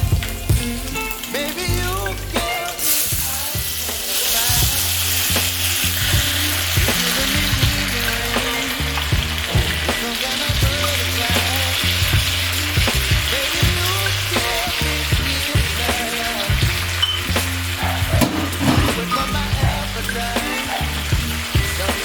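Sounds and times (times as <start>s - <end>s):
vegetables sizzling in hot oil: 0.0s - 22.0s
stirring in a pan: 16.0s - 22.0s.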